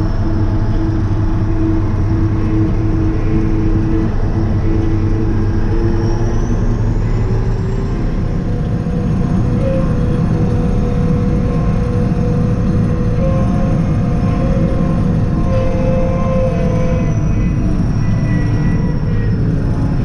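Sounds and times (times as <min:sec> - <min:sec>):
mid-pitched whine: 0:00.0 - 0:20.0
tractor diesel engine running: 0:00.0 - 0:20.0
faint high whistle: 0:13.1 - 0:19.6.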